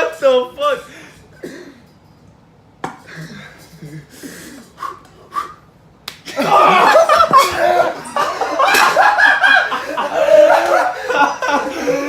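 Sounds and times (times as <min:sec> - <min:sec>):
people laughing loudly: 0:06.3 - 0:12.0
people yelling: 0:06.3 - 0:12.0.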